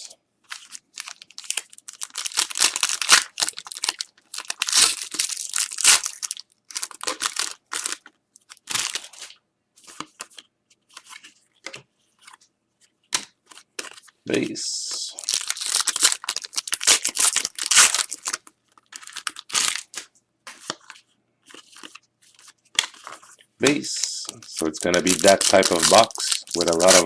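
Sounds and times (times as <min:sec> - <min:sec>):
card pack wrapper tearing: 0:00.5 - 0:09.2, 0:15.1 - 0:20.0, 0:21.5 - 0:27.0.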